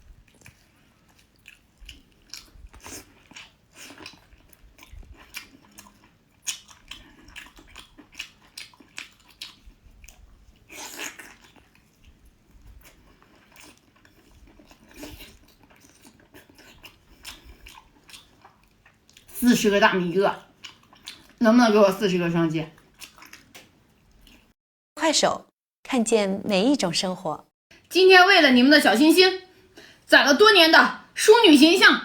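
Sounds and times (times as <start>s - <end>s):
person chewing food: 0.0s - 19.4s, 20.4s - 21.4s, 22.8s - 24.6s.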